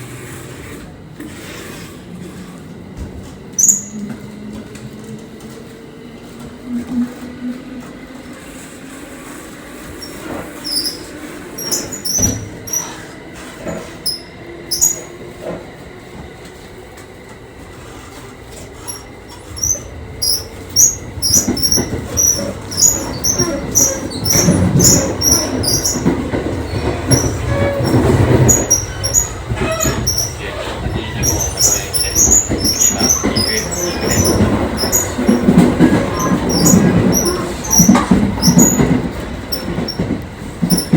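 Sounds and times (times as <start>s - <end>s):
train rumble: 0.0s - 40.9s
high-pitched squeaks and clicks: 3.6s - 4.2s, 10.0s - 13.0s, 13.7s - 15.1s, 18.8s - 40.1s.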